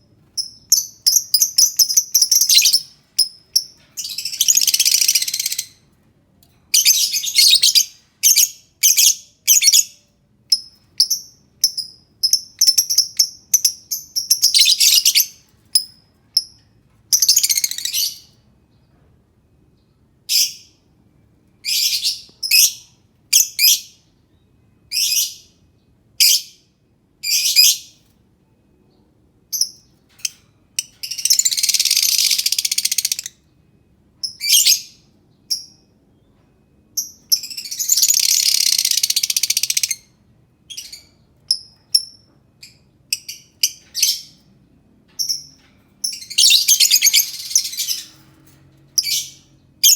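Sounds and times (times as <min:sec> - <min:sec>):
bird chirping and chattering: 0:00.4 - 0:05.8, 0:29.5 - 0:33.4, 0:37.0 - 0:40.1, 0:45.2 - 0:48.2.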